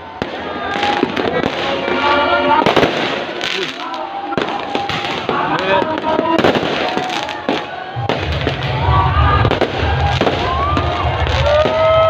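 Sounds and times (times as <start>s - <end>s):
fireworks bangs and crackles: 0.0s - 12.0s
low rumble: 7.9s - 12.0s.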